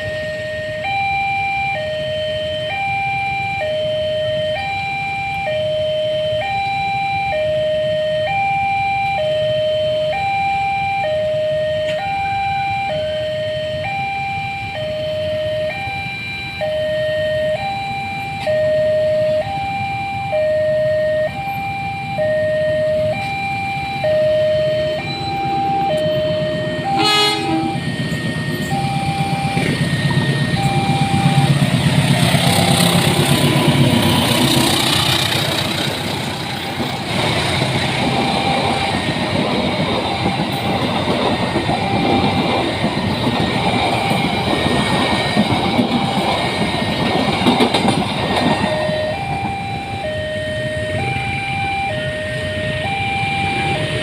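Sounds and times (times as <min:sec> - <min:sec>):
level crossing two-tone alarm: 0:00.0 - 0:54.0
train passing with wheel clatter: 0:00.0 - 0:54.0
train horn blast: 0:26.8 - 0:27.9.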